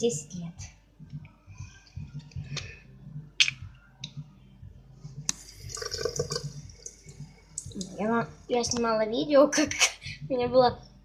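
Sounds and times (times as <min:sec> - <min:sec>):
tap water running: 0:05.3 - 0:07.9.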